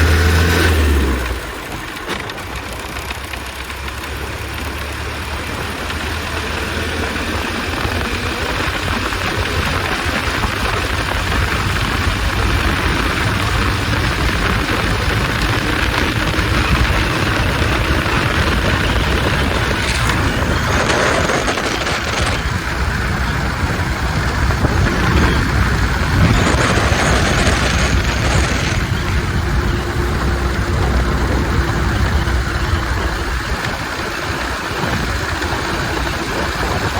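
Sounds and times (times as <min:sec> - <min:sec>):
car engine running hard: 0:00.0 - 0:36.9
road and wind noise: 0:00.0 - 0:36.9.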